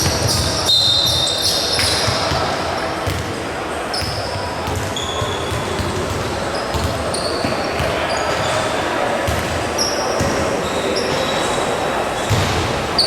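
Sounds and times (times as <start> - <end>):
basketball bouncing: 0.0 - 0.6, 1.8 - 3.3, 5.5 - 8.6, 9.2 - 9.6, 12.3 - 12.8
murmur of crowd voices: 0.0 - 13.0
sneakers squeaking: 0.0 - 13.0.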